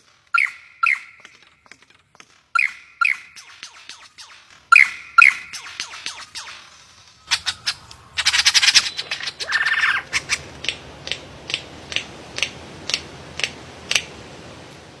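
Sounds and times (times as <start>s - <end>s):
bird squawking: 0.3s - 1.4s, 2.6s - 12.5s.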